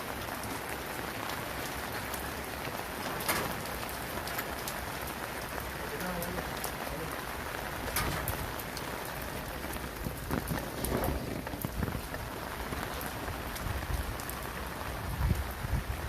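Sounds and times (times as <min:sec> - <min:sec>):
steady rain: 0:00.0 - 0:16.0
sharp drips hitting surfaces: 0:01.6 - 0:06.8, 0:07.5 - 0:10.8.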